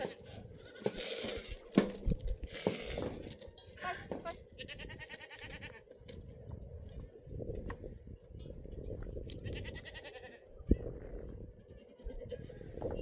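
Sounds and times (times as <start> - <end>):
livestock bleating: 3.8 - 5.9, 9.4 - 10.6, 11.6 - 12.6.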